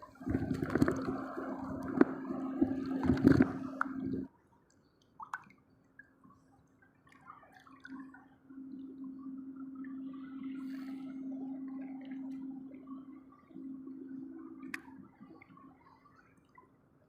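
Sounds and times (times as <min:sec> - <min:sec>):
faint bubbling: 0:00.0 - 0:04.3
water splashing and dripping: 0:00.0 - 0:04.3, 0:05.2 - 0:08.2.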